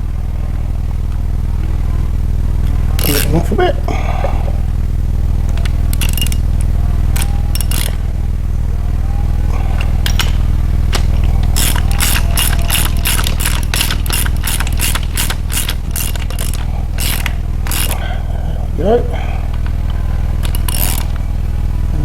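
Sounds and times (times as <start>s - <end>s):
steady low hum: 0.0s - 22.0s
socket ratchet clicking: 5.5s - 8.0s, 9.8s - 18.0s, 19.5s - 21.2s.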